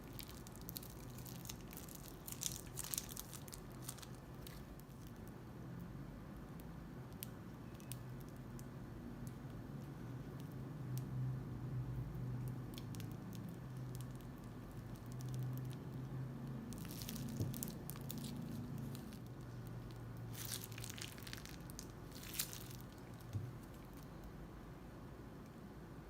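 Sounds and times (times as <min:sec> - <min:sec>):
crunchy slime crackling: 0:00.0 - 0:05.3, 0:12.4 - 0:24.4.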